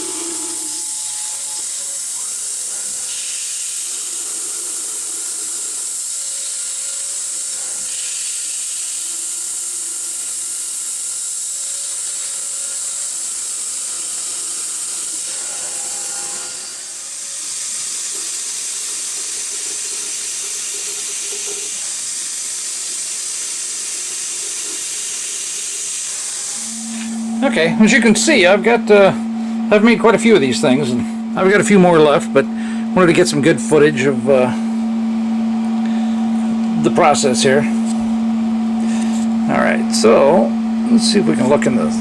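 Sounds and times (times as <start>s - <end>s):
cnc mill spindle turning: 0.0s - 42.0s
steady high hiss: 22.5s - 34.6s.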